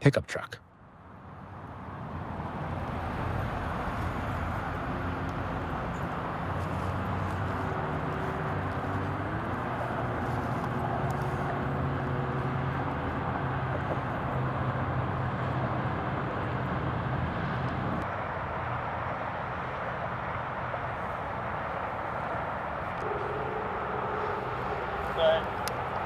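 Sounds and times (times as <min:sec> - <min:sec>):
outdoor noise: 0:00.0 - 0:26.0
vehicle engine idling: 0:21.4 - 0:26.0.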